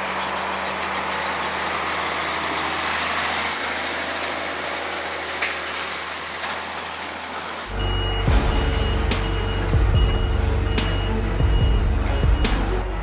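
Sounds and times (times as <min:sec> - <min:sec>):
truck engine idling: 0:07.7 - 0:13.0.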